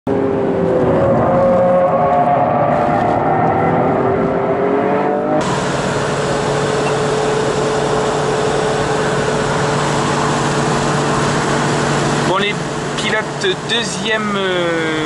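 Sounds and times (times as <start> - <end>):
wind and road noise: 0.1 - 13.4
car engine humming: 0.1 - 15.0
car engine revving: 0.1 - 15.0.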